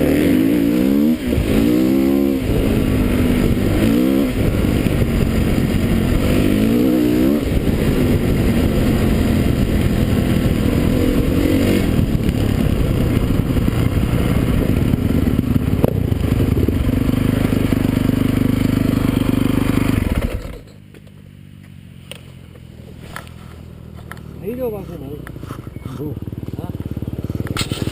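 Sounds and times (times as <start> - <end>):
dirt bike engines revving: 0.0 - 20.8, 22.1 - 27.9.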